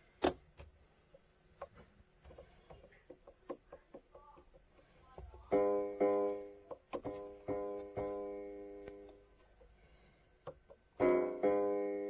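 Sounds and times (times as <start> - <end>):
loud piano chord ringing: 11.0 - 12.0.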